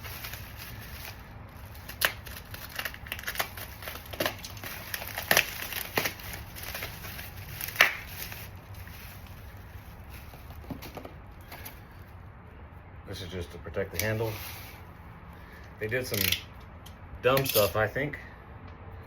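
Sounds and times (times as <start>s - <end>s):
packaging crinkling: 0.0s - 11.7s.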